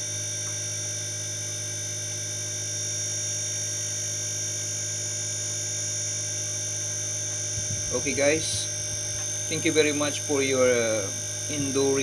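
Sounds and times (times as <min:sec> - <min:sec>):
air conditioner hum: 0:00.0 - 0:12.0
high-pitched whining tones: 0:07.5 - 0:12.0.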